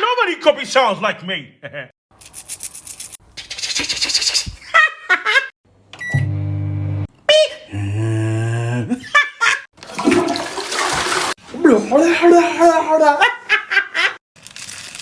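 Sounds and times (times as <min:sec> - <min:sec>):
microwave electric hum: 0:05.9 - 0:07.1
microwave beep: 0:06.0 - 0:07.0
man imitating hum with mouth: 0:07.3 - 0:09.0.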